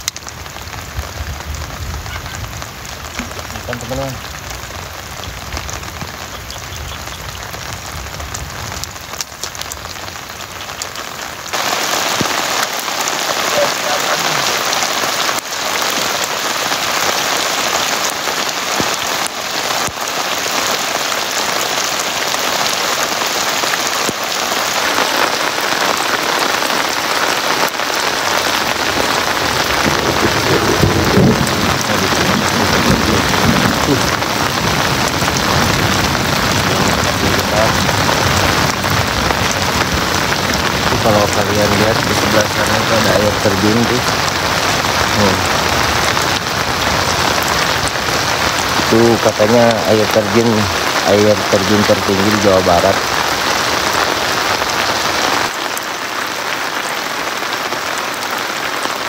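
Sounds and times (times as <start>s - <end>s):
heavy rain on tarp and water: 0.0s - 59.0s.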